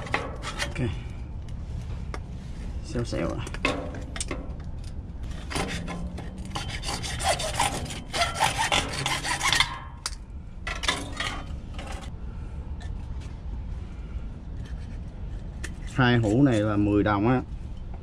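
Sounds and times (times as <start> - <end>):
plastic pipe rubbing and scraping: 0.0 - 0.9, 1.8 - 12.1, 14.5 - 16.8.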